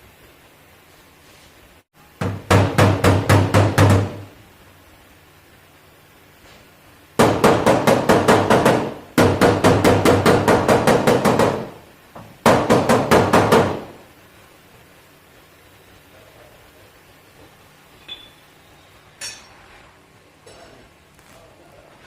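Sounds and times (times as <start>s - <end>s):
hammer striking sheet metal: 19.2s - 19.6s.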